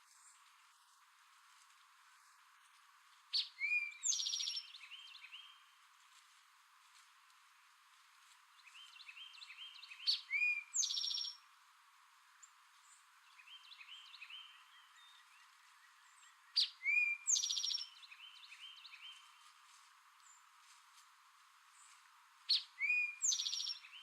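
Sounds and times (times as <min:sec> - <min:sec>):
faint bird chirps: 0:03.3 - 0:05.7, 0:08.6 - 0:11.4, 0:12.4 - 0:19.6, 0:21.7 - 0:24.0.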